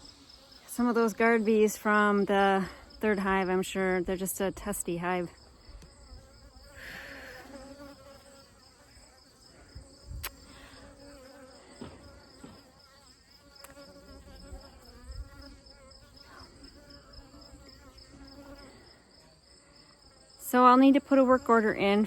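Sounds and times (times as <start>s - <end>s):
honeybees buzzing: 0.0s - 19.1s.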